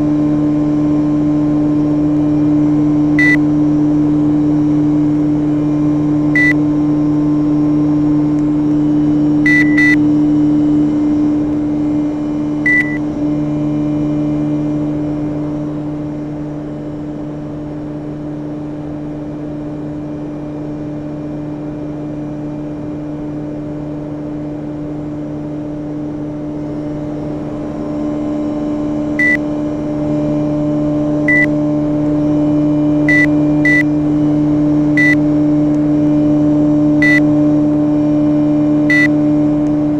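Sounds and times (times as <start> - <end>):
short high beeps: 3.2 - 3.4, 6.4 - 6.6, 9.5 - 10.0, 12.7 - 13.0, 29.2 - 29.4, 33.1 - 33.8, 35.0 - 35.2, 37.0 - 37.2.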